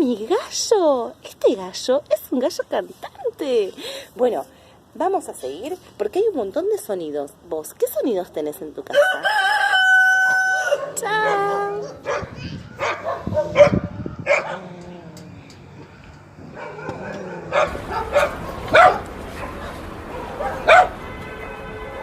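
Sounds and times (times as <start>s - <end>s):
dog barking: 10.6s - 14.7s, 16.4s - 21.0s.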